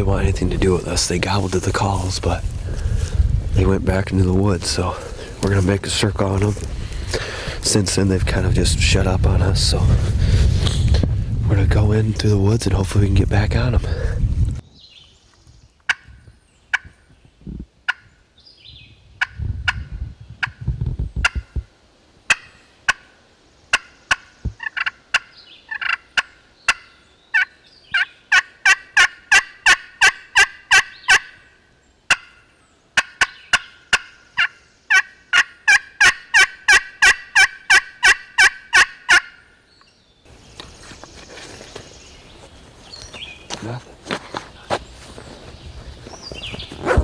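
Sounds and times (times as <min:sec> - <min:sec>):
turkey call yelps: 0:23.7 - 0:31.4, 0:32.1 - 0:39.5.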